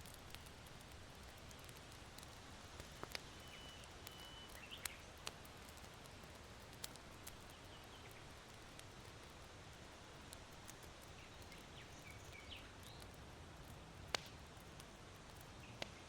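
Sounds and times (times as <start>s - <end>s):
charcoal embers crackling: 0.0s - 16.0s
distant bird whistling and chirping: 3.3s - 5.0s.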